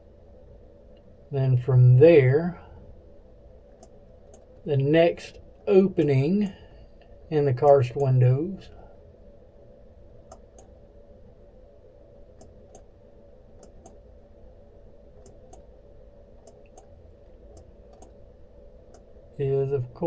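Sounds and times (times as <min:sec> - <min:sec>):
faint hum: 0:00.0 - 0:20.0
computer mouse clicking: 0:03.8 - 0:04.5, 0:10.3 - 0:10.7, 0:12.4 - 0:12.9, 0:13.6 - 0:14.0, 0:15.2 - 0:15.7, 0:16.4 - 0:16.9, 0:17.5 - 0:18.2.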